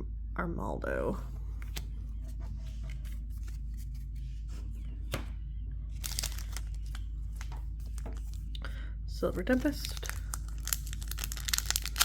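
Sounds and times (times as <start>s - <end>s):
steady low hum: 0.0s - 12.0s
cards shuffling and rustling: 1.5s - 5.3s, 5.9s - 8.6s, 9.5s - 12.0s
foil pack crinkling: 5.9s - 12.0s.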